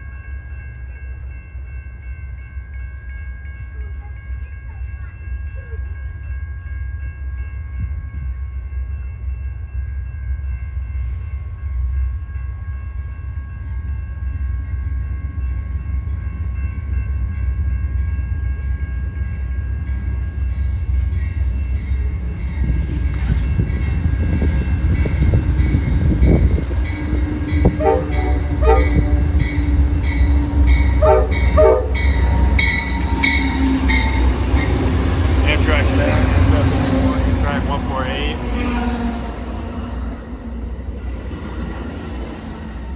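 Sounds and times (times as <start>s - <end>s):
train horn chord: 26.8s - 40.6s
deep diesel rumble: 27.6s - 40.9s.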